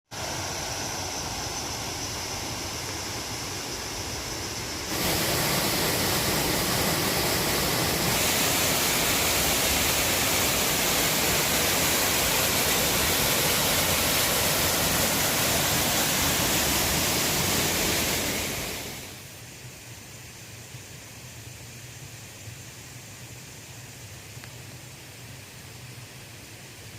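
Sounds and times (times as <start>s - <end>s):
river water flowing: 4.9s - 19.3s.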